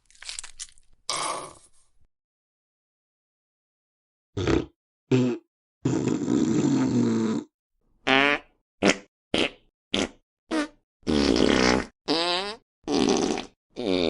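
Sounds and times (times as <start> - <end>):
fart sound effects: 4.4 - 7.5, 8.1 - 14.0.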